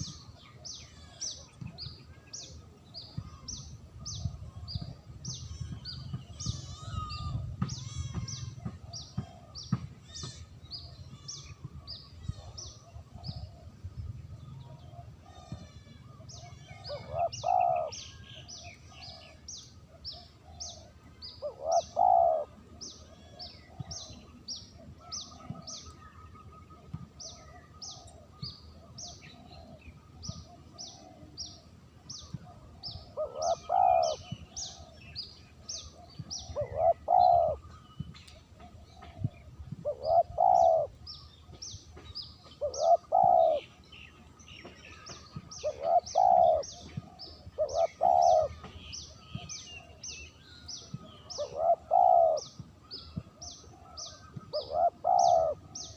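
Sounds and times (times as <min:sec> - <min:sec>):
small birds chirping: 0:00.0 - 0:55.9
dove cooing: 0:16.5 - 0:24.2, 0:26.6 - 0:31.6, 0:32.2 - 0:35.0, 0:35.8 - 0:37.7, 0:38.5 - 0:41.0, 0:42.4 - 0:43.8, 0:44.9 - 0:48.7, 0:51.0 - 0:52.6, 0:53.2 - 0:55.9.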